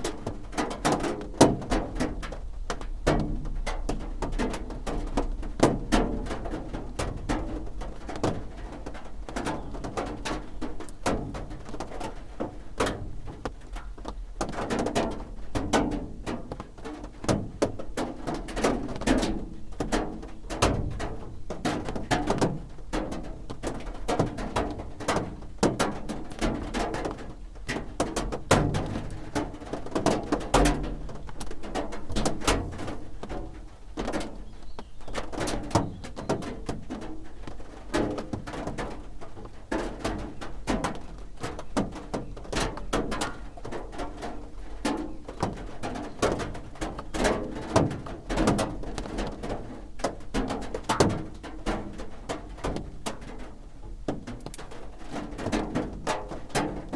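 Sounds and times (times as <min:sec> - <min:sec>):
rain drumming on a roof: 0:00.0 - 0:56.9.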